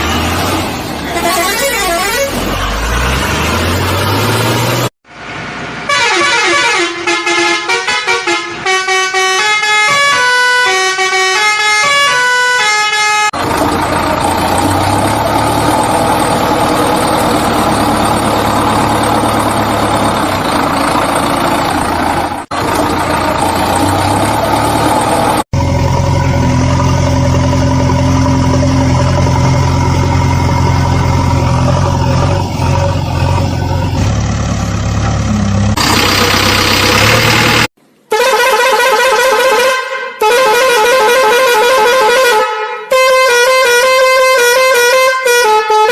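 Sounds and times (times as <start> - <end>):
horn tones: 1.1 - 2.9
truck engine running: 13.4 - 37.8.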